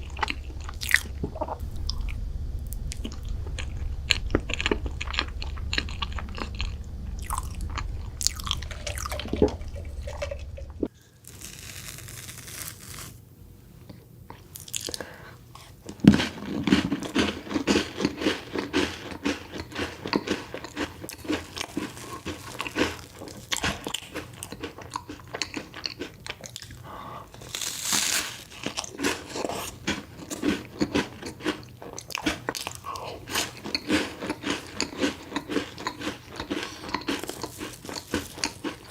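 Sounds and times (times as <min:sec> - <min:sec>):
low hum: 0:00.0 - 0:10.9
crunchy chewing: 0:00.0 - 0:13.2, 0:14.3 - 0:38.9.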